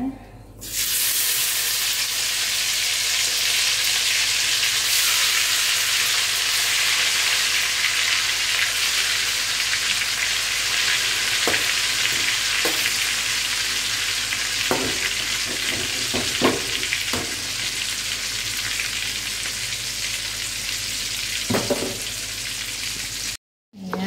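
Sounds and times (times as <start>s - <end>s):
food sizzling in a wok: 0.6s - 23.4s.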